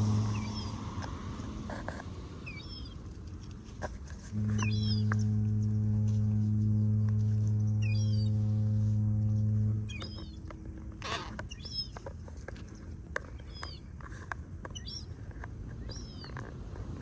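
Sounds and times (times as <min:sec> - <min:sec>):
small birds chirping: 0:00.0 - 0:00.8, 0:02.4 - 0:03.6, 0:04.4 - 0:05.8, 0:07.5 - 0:08.4, 0:09.2 - 0:16.7
steady low rumble: 0:00.0 - 0:17.0.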